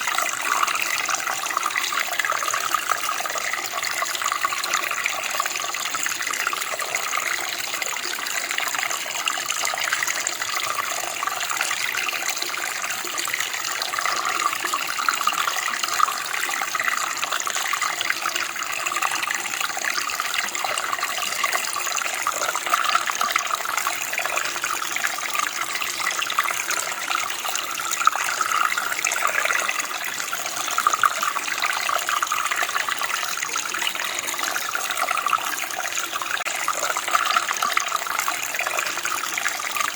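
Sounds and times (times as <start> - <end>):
running water babbling: 0.0 - 39.9.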